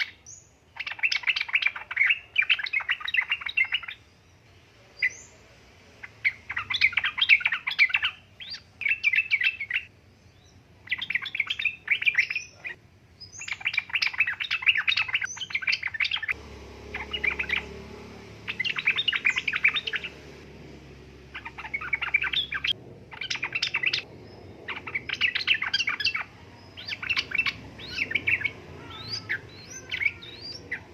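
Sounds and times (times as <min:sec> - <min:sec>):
bird chattering song: 0:00.0 - 0:04.2, 0:06.0 - 0:20.6, 0:21.2 - 0:30.9
low background hum: 0:15.4 - 0:30.9.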